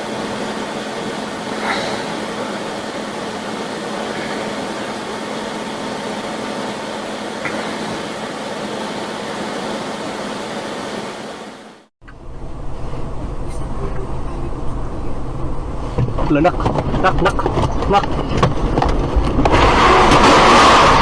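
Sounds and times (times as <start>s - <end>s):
faint constant hum: 11.0s - 19.4s.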